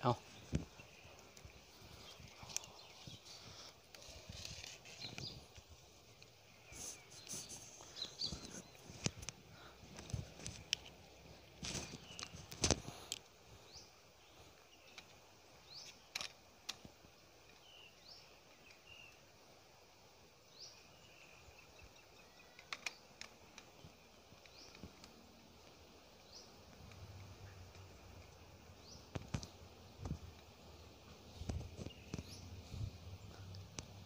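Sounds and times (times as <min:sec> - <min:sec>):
steady hiss: 0:00.0 - 0:34.0
faint high bird chirps: 0:06.6 - 0:08.9, 0:20.6 - 0:24.9.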